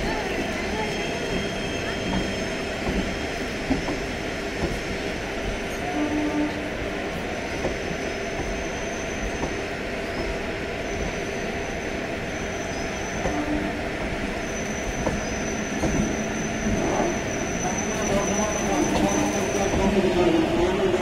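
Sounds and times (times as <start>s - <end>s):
train wheels rumbling on rails: 0.0s - 21.0s
high wheel squeal: 14.4s - 19.9s.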